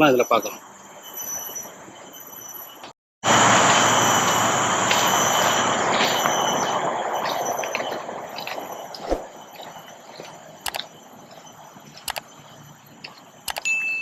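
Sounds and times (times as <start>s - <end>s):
faint insect chirring: 0.0s - 14.0s
cicada buzzing hiss: 3.3s - 13.6s.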